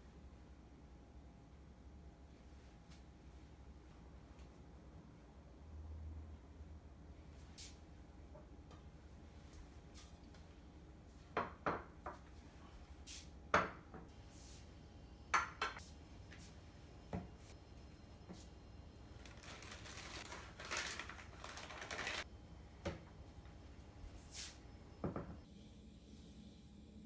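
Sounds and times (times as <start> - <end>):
rustling: 19.2 - 22.3.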